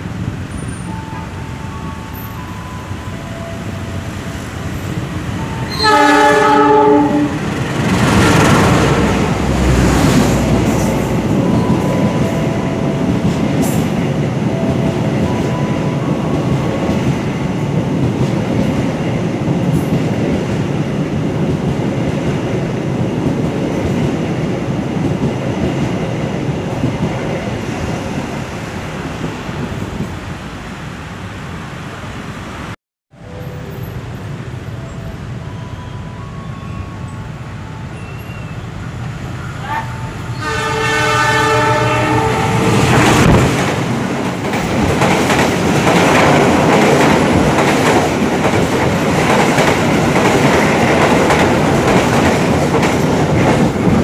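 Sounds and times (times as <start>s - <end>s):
train wheels on track: 0.0s - 31.3s, 32.5s - 54.0s
train horn blast: 5.4s - 7.5s, 39.6s - 43.4s.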